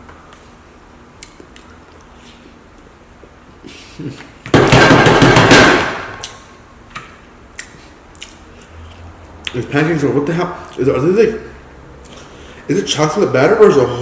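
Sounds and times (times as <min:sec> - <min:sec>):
mouth smacks and clicks eating: 0:07.5 - 0:09.6.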